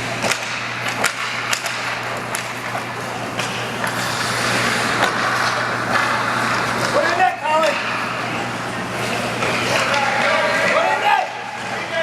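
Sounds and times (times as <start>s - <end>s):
steady low hum: 0.0s - 10.8s
hockey sticks and puck clacking: 0.2s - 8.4s, 9.0s - 11.7s
skates scraping on ice: 3.4s - 8.0s.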